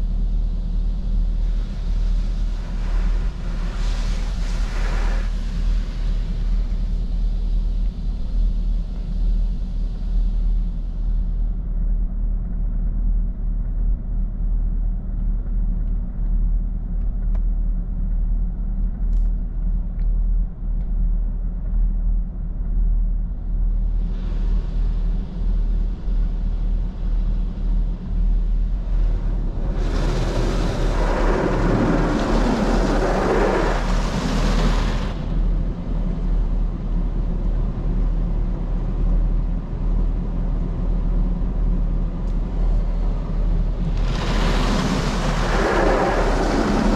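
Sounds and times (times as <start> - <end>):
car wash machinery: 0.7 - 6.8, 25.4 - 39.5, 40.1 - 46.9
rushing hiss: 29.7 - 35.2.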